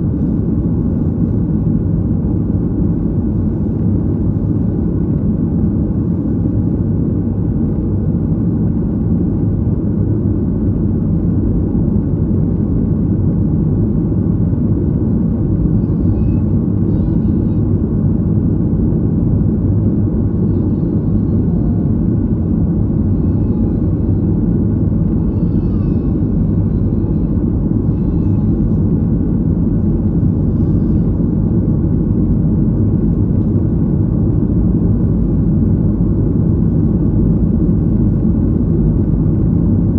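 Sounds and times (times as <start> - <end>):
airliner engines rumbling: 0.0 - 39.9.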